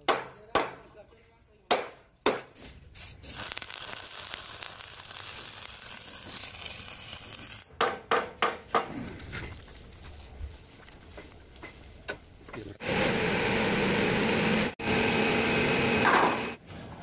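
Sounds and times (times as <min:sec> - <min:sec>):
welding arc crackling: 0:02.6 - 0:07.7, 0:09.1 - 0:12.5
sharp knocks on metal: 0:07.8 - 0:08.9.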